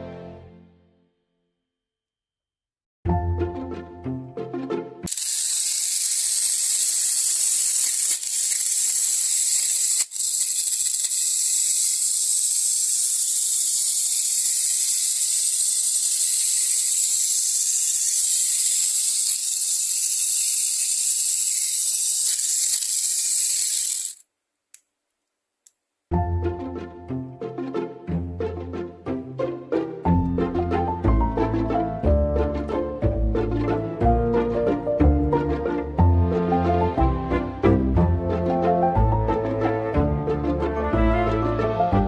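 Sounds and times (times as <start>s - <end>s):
toy car motor whining: 5.1s - 24.2s.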